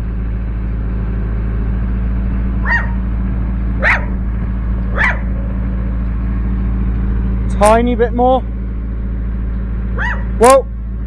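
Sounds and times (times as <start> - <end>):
excavator diesel engine droning: 0.0 - 11.0
dog barking: 2.6 - 3.0, 3.8 - 4.2, 4.9 - 5.4, 10.0 - 10.4.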